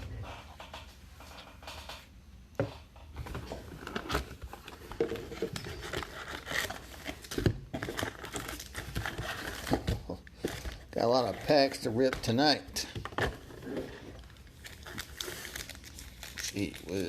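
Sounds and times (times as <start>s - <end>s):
plastic wrapping crinkling and tearing: 3.7s - 17.0s.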